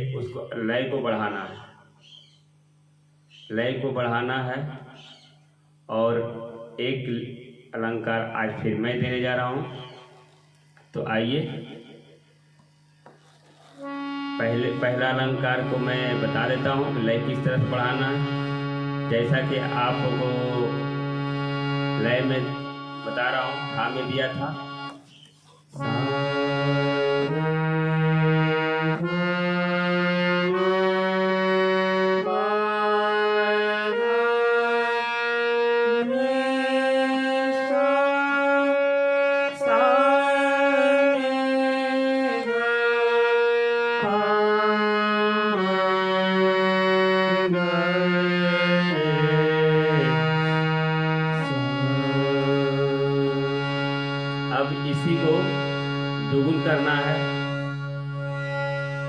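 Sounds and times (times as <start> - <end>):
harmonium playing scale: 8.2 - 59.0.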